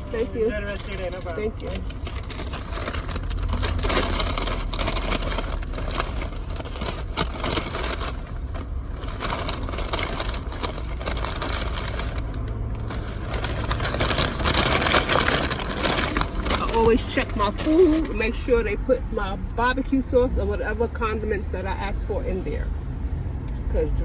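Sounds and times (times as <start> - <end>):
paper bag rustling: 0.0 - 18.7
car engine idling: 0.0 - 24.0.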